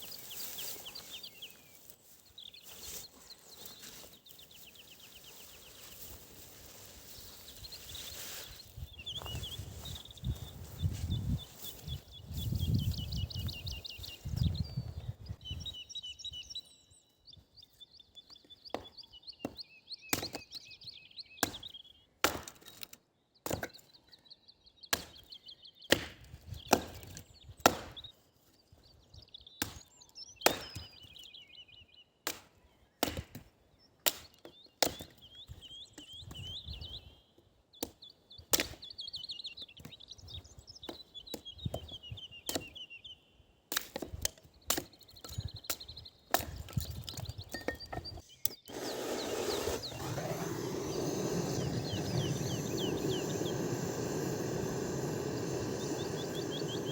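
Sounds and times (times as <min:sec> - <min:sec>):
birds singing in trills: 0:00.0 - 0:22.2, 0:23.1 - 0:43.6, 0:44.3 - 0:56.9
wood being chopped: 0:18.7 - 0:20.4, 0:22.2 - 0:23.8, 0:24.9 - 0:25.3, 0:25.9 - 0:28.0, 0:29.6 - 0:30.9, 0:32.3 - 0:35.2.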